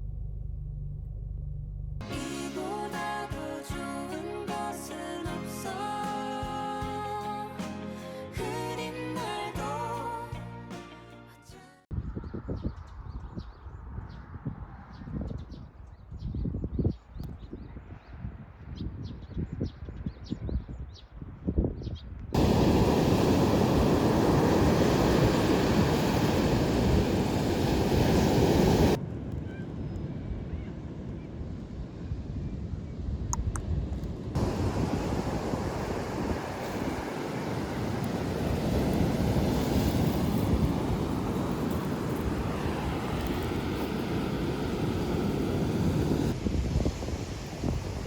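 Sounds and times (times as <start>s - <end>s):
wind buffeting microphone: 11.9s - 48.0s
surf on a beach: 22.4s - 32.6s, 34.2s - 48.0s
sea wind: 22.4s - 48.0s.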